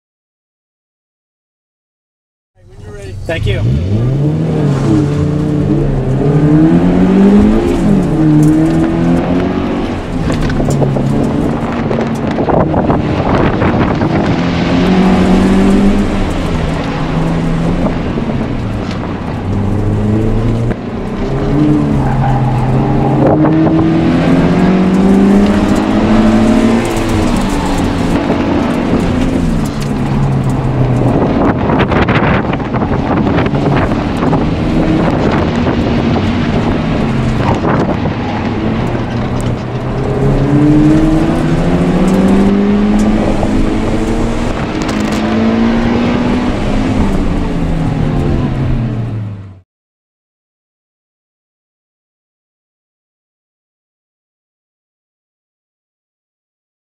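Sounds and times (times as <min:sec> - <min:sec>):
car engine accelerating: 0:02.6 - 0:49.6
road and wind noise: 0:02.6 - 0:49.6.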